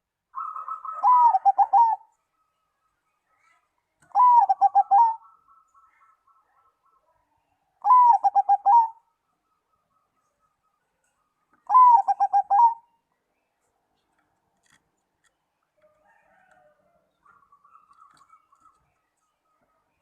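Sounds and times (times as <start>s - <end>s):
faint bird calls: 0.3s - 13.1s
dove cooing song: 0.4s - 2.2s, 4.0s - 5.9s, 7.8s - 9.1s, 11.6s - 13.0s.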